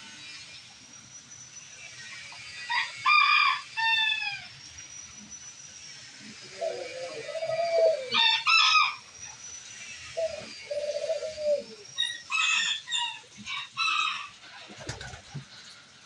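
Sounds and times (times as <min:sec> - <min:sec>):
dove cooing: 0:06.2 - 0:08.5, 0:10.1 - 0:11.9
chickens calling: 0:06.2 - 0:15.3.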